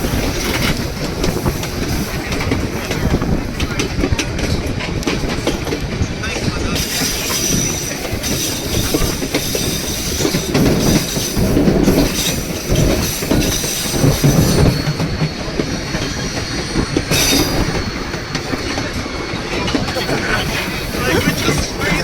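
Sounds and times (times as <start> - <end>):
train wheels rumbling on rails: 0.0 - 22.0
high wheel squeal: 6.8 - 22.0.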